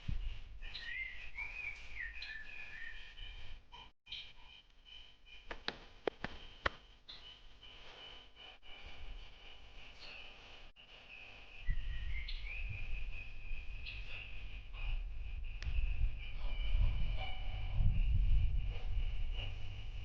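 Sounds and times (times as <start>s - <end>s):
high steady whistling calls: 0.6s - 5.6s, 10.8s - 20.0s
low rumble: 11.6s - 20.0s.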